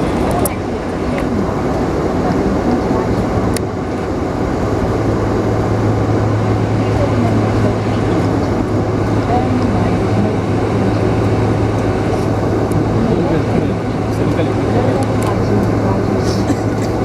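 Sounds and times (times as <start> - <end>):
background voices: 0.0 - 4.6, 5.5 - 17.0
loud mechanical rumble: 0.0 - 17.0
low steady hum: 0.0 - 17.0.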